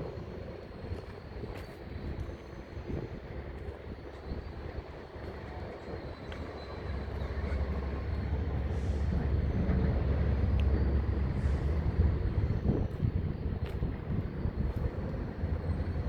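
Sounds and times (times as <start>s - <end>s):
excavator diesel engine rumbling: 5.0s - 16.0s.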